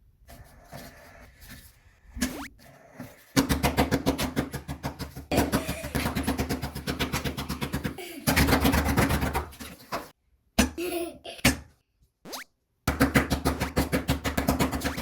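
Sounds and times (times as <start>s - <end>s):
fast drum beat: 3.4s - 9.4s.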